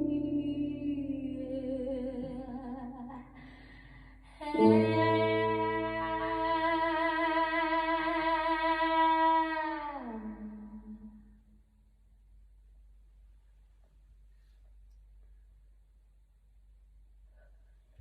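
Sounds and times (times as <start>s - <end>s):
person singing wordlessly: 4.4s - 10.9s.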